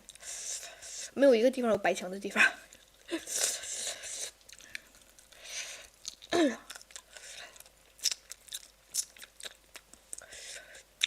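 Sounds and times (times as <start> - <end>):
person chewing and crunching food: 0.0 - 1.0, 2.6 - 11.0
wet mouth clicks: 8.0 - 10.3.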